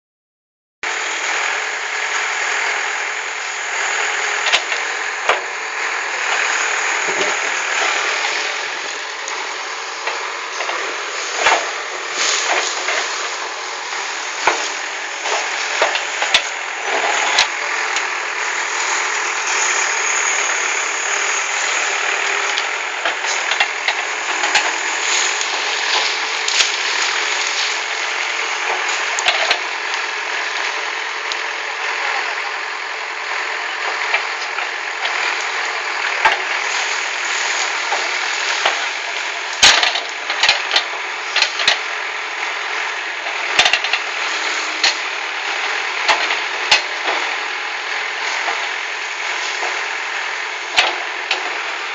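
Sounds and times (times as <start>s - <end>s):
backhoe diesel engine running: 0.8s - 51.9s
sharp knocks and clatter: 10.0s - 13.2s, 28.6s - 29.6s.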